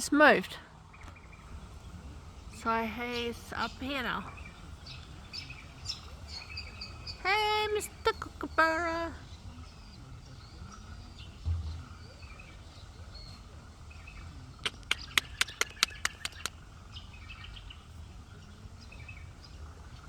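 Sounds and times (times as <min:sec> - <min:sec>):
faint bird chirps: 0:00.8 - 0:20.0
short low thump: 0:11.4 - 0:12.6
sharp clicks: 0:14.6 - 0:16.6.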